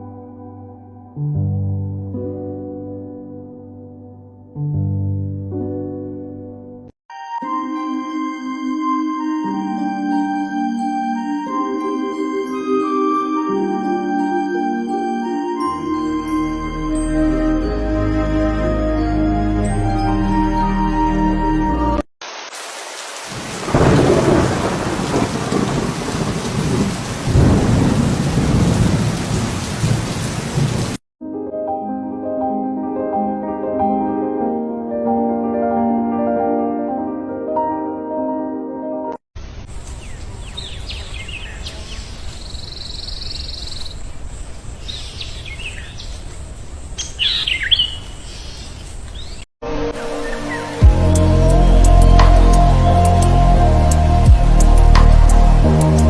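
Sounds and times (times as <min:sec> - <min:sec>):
heavy rain: 0:22.2 - 0:31.0, 0:49.9 - 0:56.0
thunder rumbling: 0:23.4 - 0:31.0, 0:50.8 - 0:56.0
songbirds chirping: 0:39.6 - 0:53.5
steady low rumble: 0:50.8 - 0:56.0.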